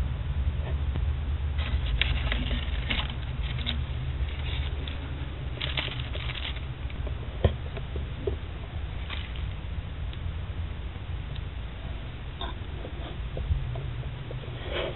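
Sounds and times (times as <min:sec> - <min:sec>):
steady low hum: 0:00.0 - 0:14.9
crinkling rustle: 0:01.6 - 0:09.7.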